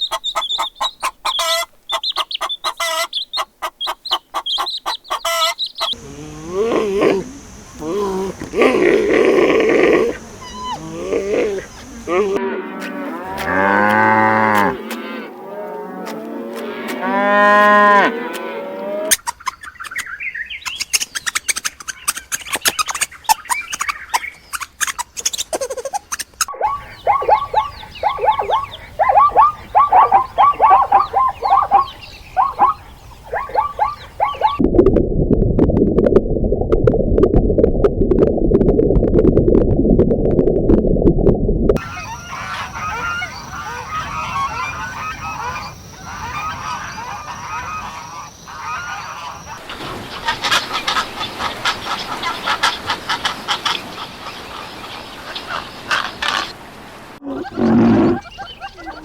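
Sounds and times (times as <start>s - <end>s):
short quick animal calls: 5.9s - 12.4s
cattle mooing: 6.0s - 19.1s, 57.2s - 58.3s.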